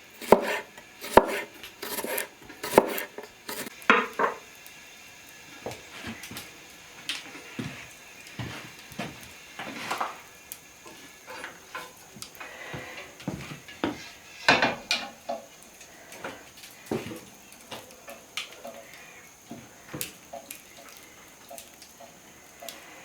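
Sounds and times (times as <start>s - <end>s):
kitchen utensils clinking: 0.0s - 4.4s, 14.4s - 15.4s.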